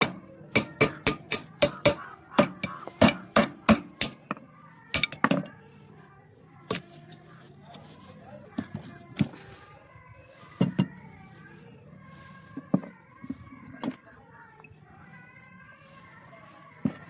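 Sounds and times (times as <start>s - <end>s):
hammer blows on metal: 0.0s - 5.5s.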